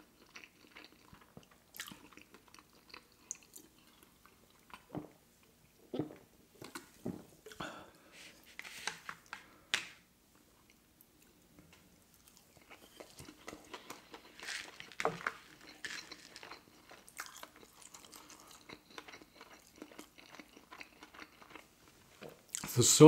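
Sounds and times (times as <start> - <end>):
crunching food: 0.0 - 5.1, 12.1 - 22.8.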